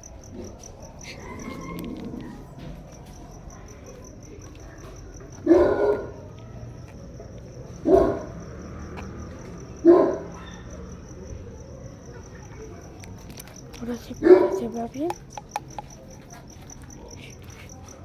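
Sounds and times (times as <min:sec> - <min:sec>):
cricket chirping: 0:00.0 - 0:18.0
dog barking: 0:05.3 - 0:06.5, 0:07.7 - 0:08.6, 0:09.7 - 0:11.1, 0:14.1 - 0:15.2.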